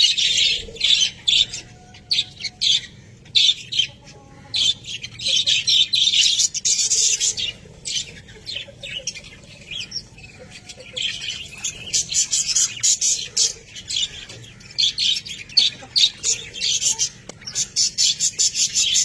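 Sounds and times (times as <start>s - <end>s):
budgerigars chirping and squawking: 0.0s - 19.0s.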